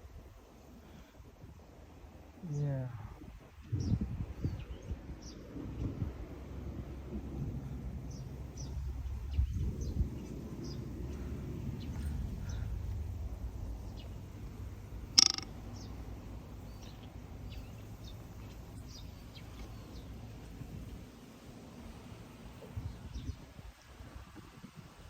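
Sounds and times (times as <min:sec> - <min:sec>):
steady low rumble: 0:03.7 - 0:23.3
small birds chirping: 0:08.0 - 0:23.5
sharp click: 0:15.2 - 0:15.5.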